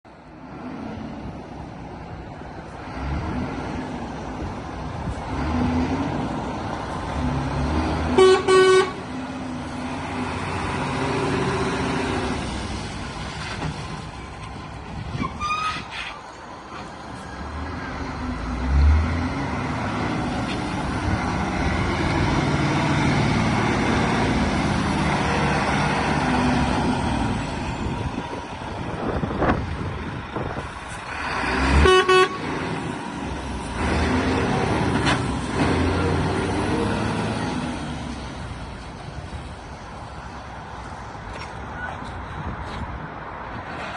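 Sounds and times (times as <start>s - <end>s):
vehicle horn toot: 8.2s - 9.0s, 31.8s - 32.4s
diesel truck engine running: 16.2s - 41.2s.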